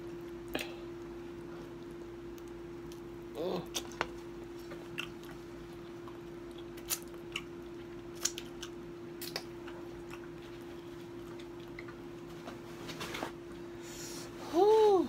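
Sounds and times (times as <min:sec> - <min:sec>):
steady hum: 0:00.0 - 0:15.0
eating clicks and smacks: 0:01.8 - 0:12.1.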